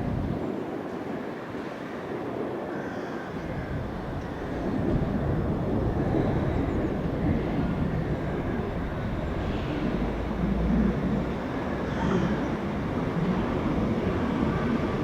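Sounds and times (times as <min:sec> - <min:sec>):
electric train rumbling past: 0:03.9 - 0:15.0.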